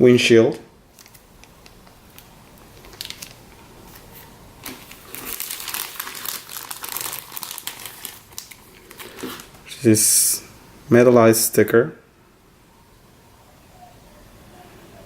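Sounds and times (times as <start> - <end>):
plastic packaging crinkling: 0.5 - 9.7.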